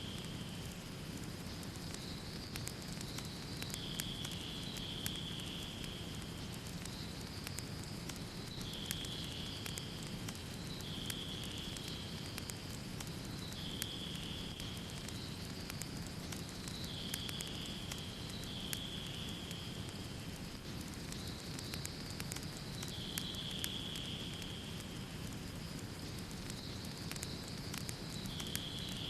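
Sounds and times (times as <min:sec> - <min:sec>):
fireplace fire crackling: 0:00.0 - 0:29.0
fire hissing: 0:00.2 - 0:29.0.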